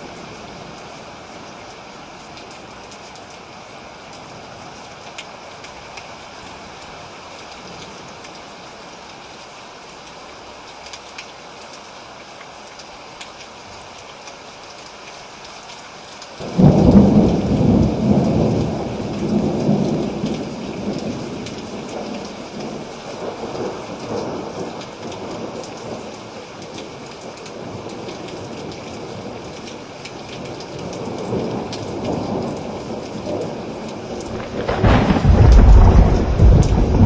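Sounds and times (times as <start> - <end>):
steady rain: 0.0 - 37.0
rolling thunder rumble: 16.4 - 24.8, 31.2 - 37.0.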